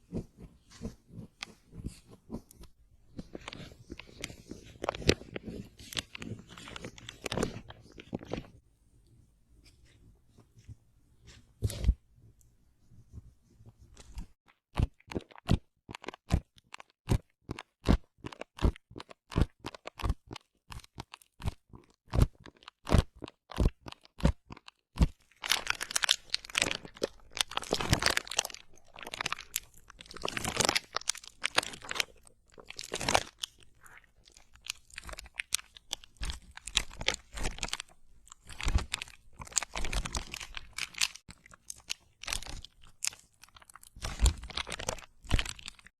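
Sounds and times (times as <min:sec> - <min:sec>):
crisp crunching: 0:22.2 - 0:45.9.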